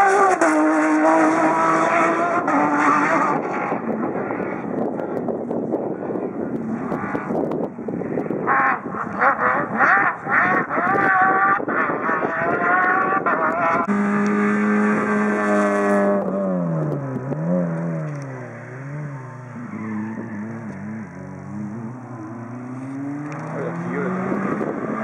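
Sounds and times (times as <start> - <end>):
car engine revving: 8.8 - 25.0.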